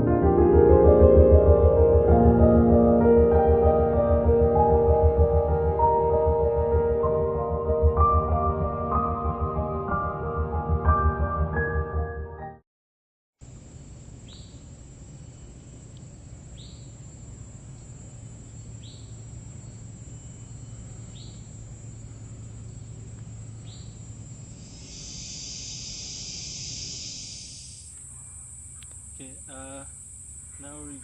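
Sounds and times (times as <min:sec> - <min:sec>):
high hissing insect buzz: 0:13.4 - 0:31.0
steady insect drone: 0:13.4 - 0:31.0.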